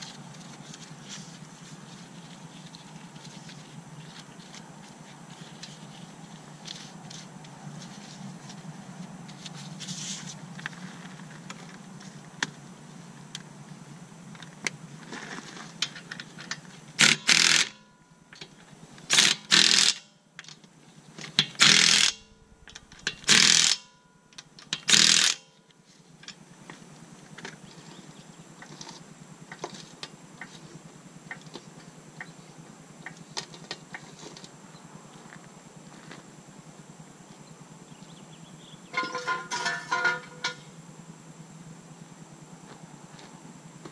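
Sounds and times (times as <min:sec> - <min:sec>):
impact wrench bursts: 0:17.0 - 0:17.9, 0:19.1 - 0:20.1, 0:21.4 - 0:24.0, 0:24.8 - 0:25.5
lug nuts clicking and scraping: 0:18.4 - 0:25.6, 0:38.9 - 0:40.7.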